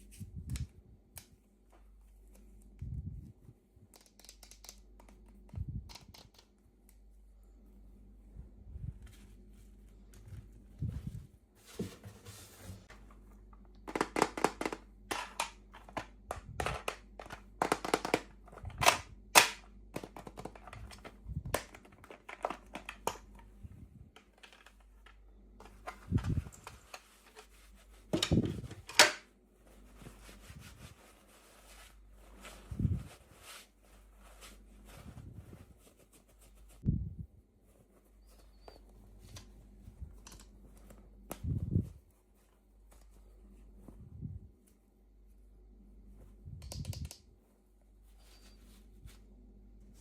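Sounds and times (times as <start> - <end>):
plastic packaging clicks and snaps: 13.7 - 23.4.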